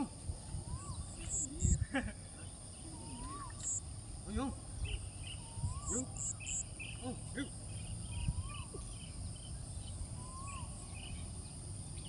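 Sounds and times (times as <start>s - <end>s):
insect drone: 0.0s - 12.0s
low wind rumble: 0.0s - 12.0s
rising and falling call: 2.8s - 3.8s, 4.9s - 7.6s.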